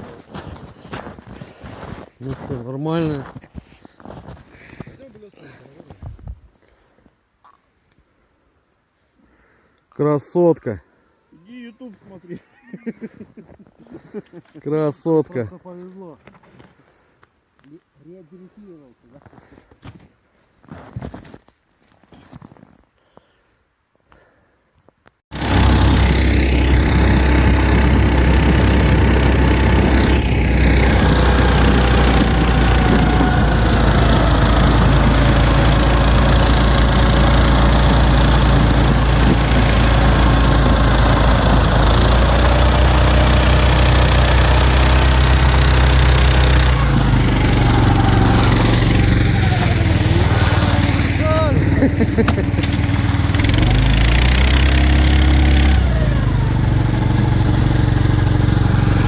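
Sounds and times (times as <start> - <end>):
vehicle engine running steadily: 25.3 - 59.0.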